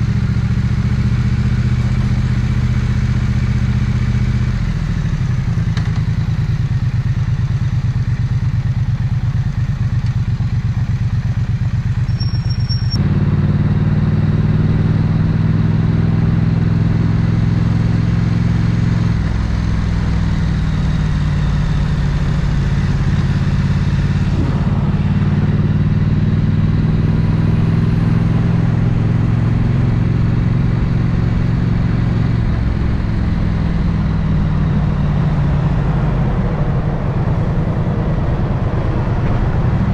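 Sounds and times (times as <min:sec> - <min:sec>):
motorcycle engine pulsing: 0:11.6 - 0:15.5.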